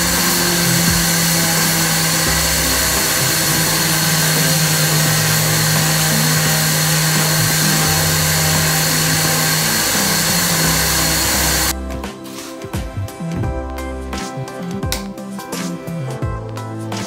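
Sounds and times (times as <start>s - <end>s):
router spindle milling wood: 0.0s - 11.7s.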